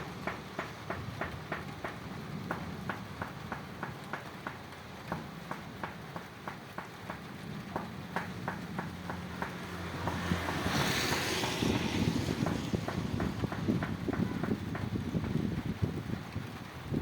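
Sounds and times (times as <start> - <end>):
water dripping in rain: 0.0 - 17.0
rushing rumble: 7.3 - 17.0.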